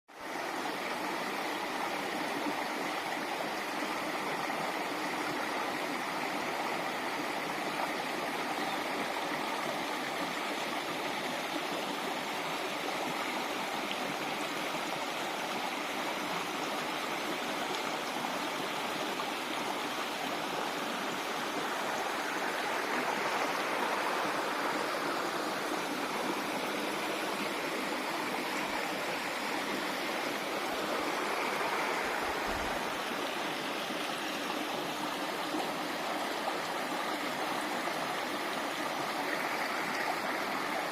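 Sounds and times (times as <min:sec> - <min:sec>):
waterfall pouring and splashing: 0:10.9 - 0:40.9.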